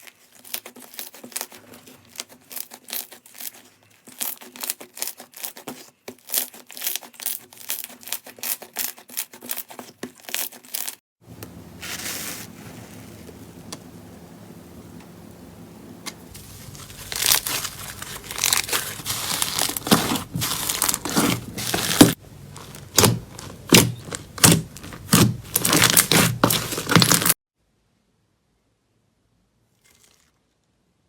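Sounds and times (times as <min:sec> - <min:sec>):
slime squeezed crackling and popping: 0:17.0 - 0:27.4.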